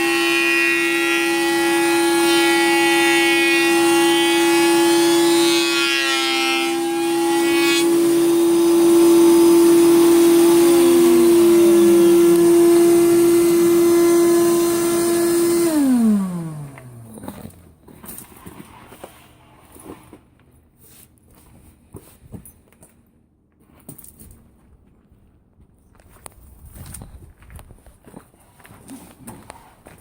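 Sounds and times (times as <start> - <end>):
machine winding down: 0.0 - 17.6
woodworking machine humming: 0.0 - 17.8.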